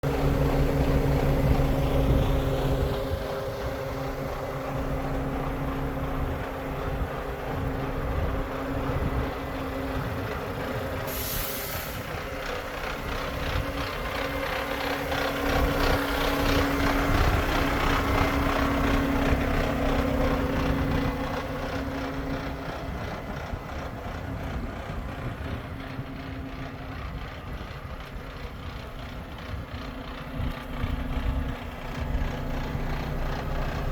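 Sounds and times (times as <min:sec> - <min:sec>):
diesel truck engine running: 0:00.0 - 0:33.9
air brake hiss: 0:11.0 - 0:12.1.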